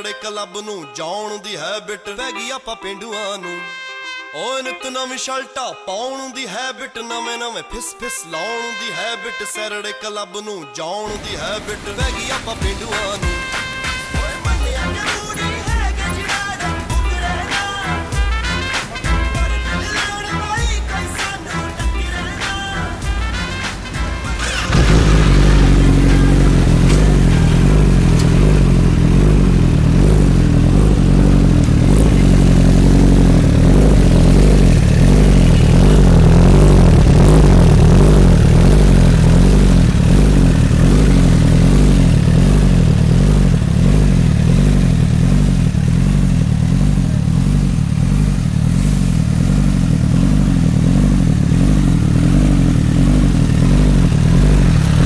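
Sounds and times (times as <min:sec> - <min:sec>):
motorcycle engine idling: 0:11.1 - 0:55.0.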